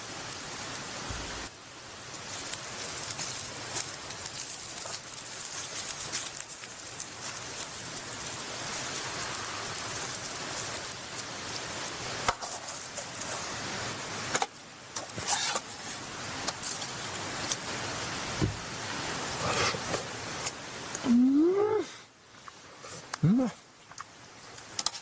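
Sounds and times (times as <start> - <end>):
meat sizzling on grill: 0.0 - 21.8, 24.2 - 25.0
sharp pops and crackles: 0.1 - 18.8, 19.5 - 21.1, 22.4 - 25.0.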